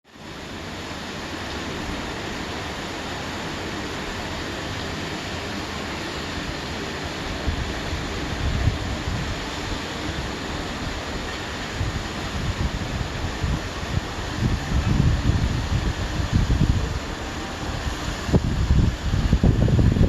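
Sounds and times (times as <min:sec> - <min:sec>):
wind buffeting microphone: 0:07.4 - 0:20.0.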